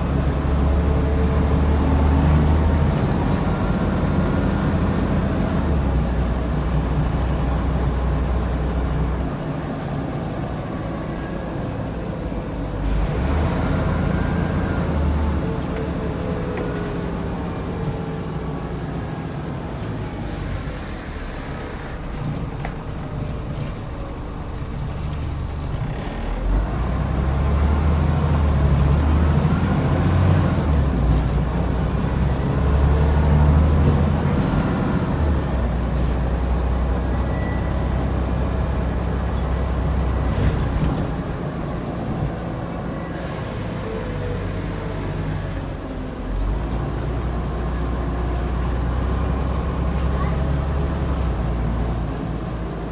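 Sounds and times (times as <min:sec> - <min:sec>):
bus diesel engine: 0:00.0 - 0:52.9
air brakes hissing: 0:12.8 - 0:14.0, 0:20.1 - 0:22.1, 0:43.0 - 0:45.6.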